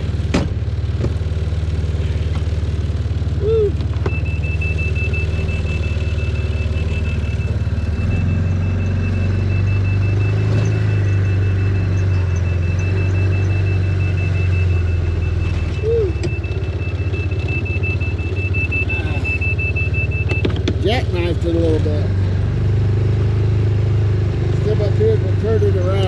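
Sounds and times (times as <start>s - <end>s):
utility vehicle engine running: 0.0s - 26.0s
rapid high-pitched beeping: 4.1s - 21.3s.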